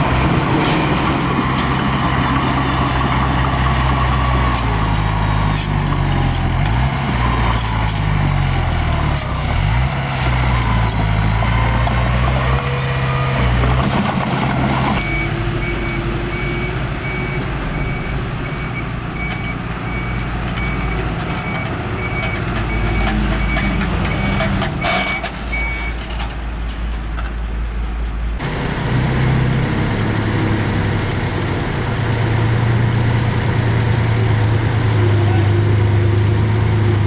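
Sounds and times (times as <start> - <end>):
diesel engine rumble: 0.0 - 37.0
reverse warning alarm beeping: 15.0 - 26.0.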